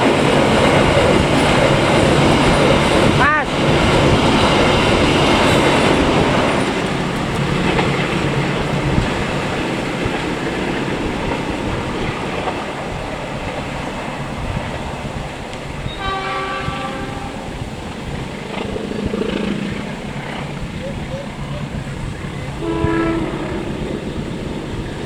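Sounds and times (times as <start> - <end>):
train wheels rumbling on rails: 0.0 - 25.0
train horn: 15.8 - 17.7, 22.6 - 24.2.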